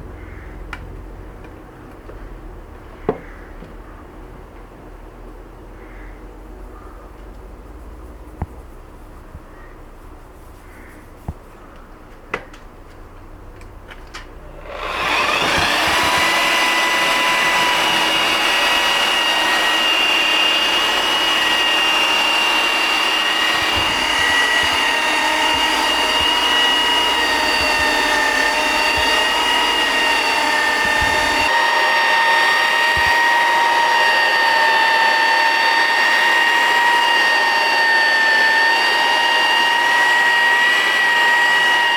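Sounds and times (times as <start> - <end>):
power tool whining: 14.2 - 41.9.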